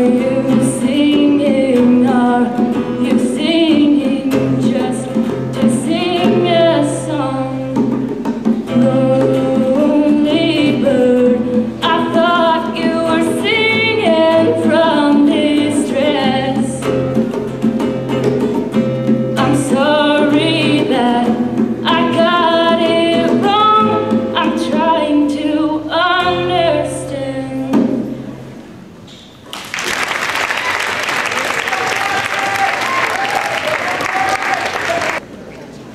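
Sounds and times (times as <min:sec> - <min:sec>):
strummed acoustic guitar: 0:00.0 - 0:28.5
people singing: 0:08.7 - 0:16.8.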